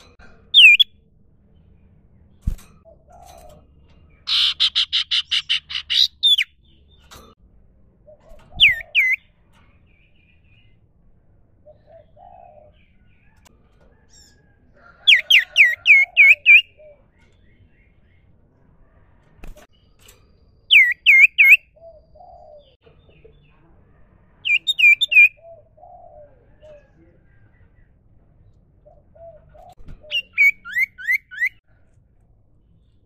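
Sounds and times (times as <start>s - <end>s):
bird whistling and trilling: 0.6s - 0.9s, 8.5s - 9.2s, 15.1s - 16.9s, 20.7s - 21.9s, 24.5s - 25.4s, 30.0s - 31.6s.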